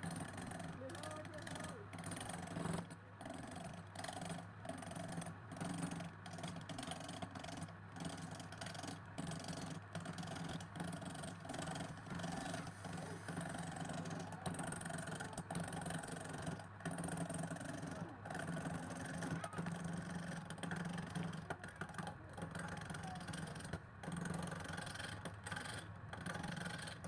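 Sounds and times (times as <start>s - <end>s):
motor humming: 11.8s - 27.0s.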